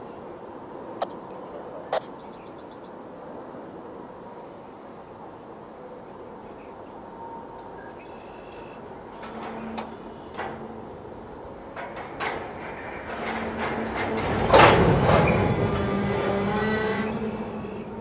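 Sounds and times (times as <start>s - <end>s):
metallic clanks and creaks: 9.1s - 11.0s, 11.6s - 18.0s
wheels and brakes squealing: 12.8s - 18.0s.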